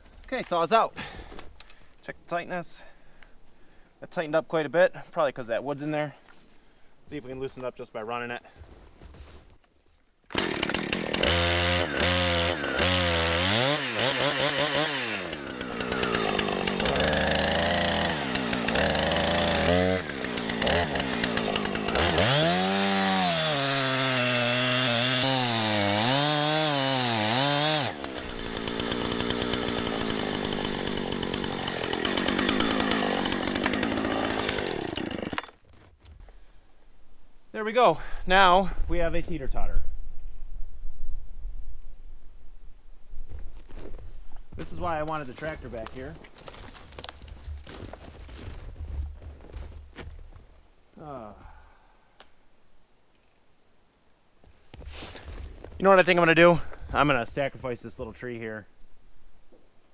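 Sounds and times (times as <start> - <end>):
chainsaw revving and cutting: 10.3 - 35.5.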